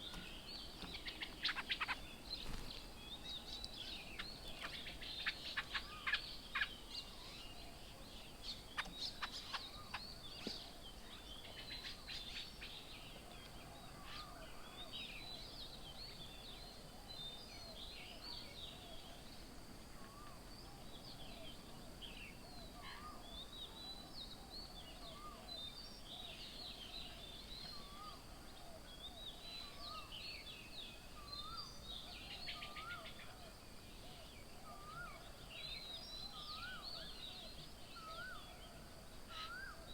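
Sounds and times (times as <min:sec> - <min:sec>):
birds chirping: 0:00.0 - 0:19.4.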